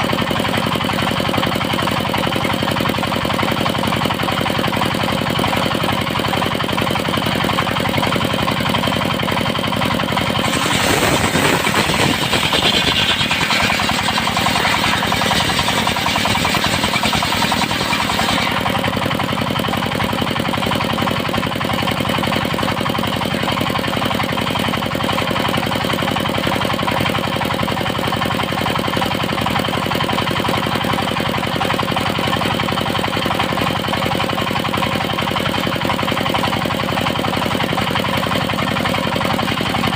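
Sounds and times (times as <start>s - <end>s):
sawmill engine knocking: 0.0s - 39.9s
saw blade cutting wood: 10.3s - 18.9s.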